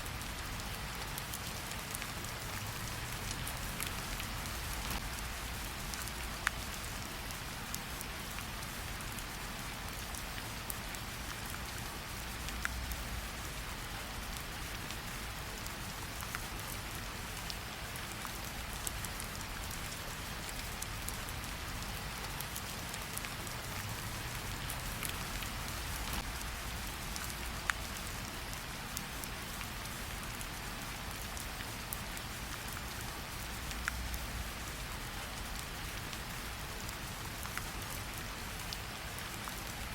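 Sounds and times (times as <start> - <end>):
rain falling: 0.0 - 39.9
wood fire crackling: 22.5 - 27.8.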